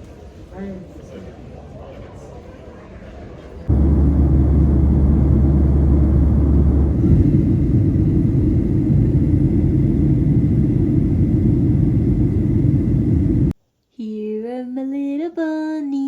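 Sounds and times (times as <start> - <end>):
deeper hum: 3.7 - 13.6
vehicle interior rumble: 3.7 - 13.6.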